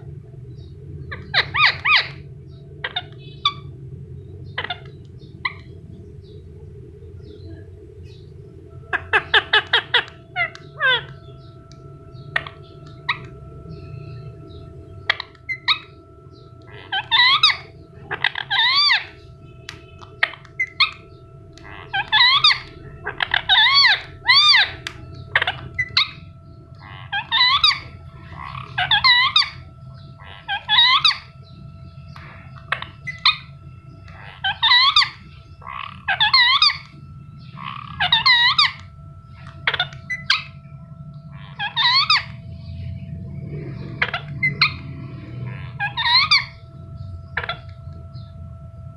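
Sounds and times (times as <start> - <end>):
faint steady hum: 0.0 - 48.9
parrot chirping shrilly: 1.1 - 2.2, 8.9 - 11.4, 12.2 - 13.3, 15.1 - 16.0, 16.7 - 19.2, 20.1 - 21.0, 21.6 - 26.2, 26.8 - 31.4, 32.1 - 40.6, 41.3 - 42.4, 43.9 - 46.6, 47.4 - 47.7.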